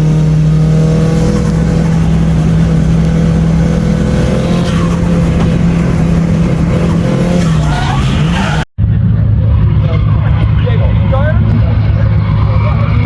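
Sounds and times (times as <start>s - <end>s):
tyres squealing: 0.0s - 8.7s
car engine at high revs: 0.0s - 13.0s.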